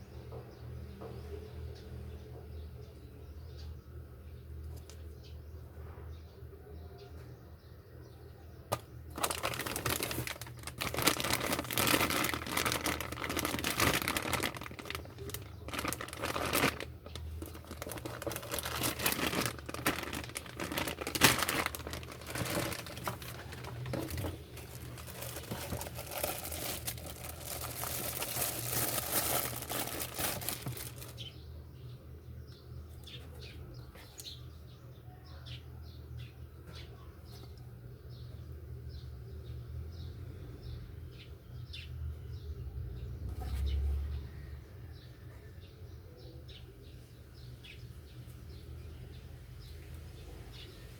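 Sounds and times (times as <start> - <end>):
plastic packaging crinkling: 8.7 - 31.3.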